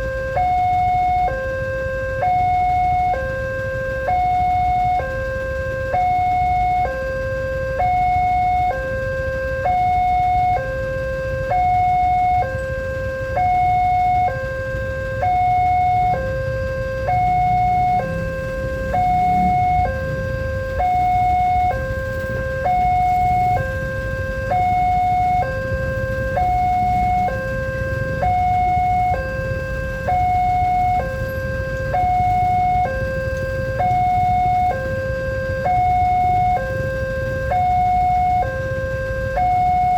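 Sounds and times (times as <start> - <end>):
level-crossing two-tone alarm: 0.0 - 39.9
low rumble: 16.6 - 24.4.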